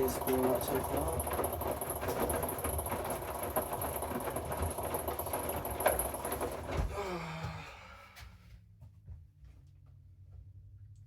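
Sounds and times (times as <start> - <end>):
washing machine rumbling: 0.0 - 7.9.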